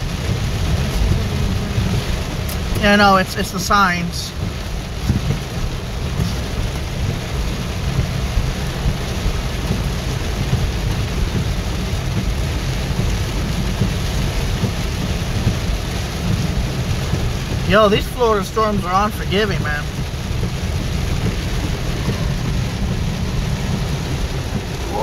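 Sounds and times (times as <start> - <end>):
deep rumble: 0.0 - 25.0
heavy rain drumming on a car: 0.0 - 25.0.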